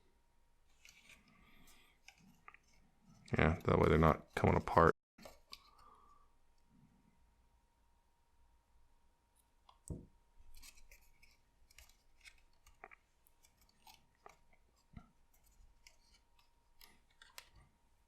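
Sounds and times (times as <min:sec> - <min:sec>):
paper rustling and clicks: 0:10.5 - 0:17.7.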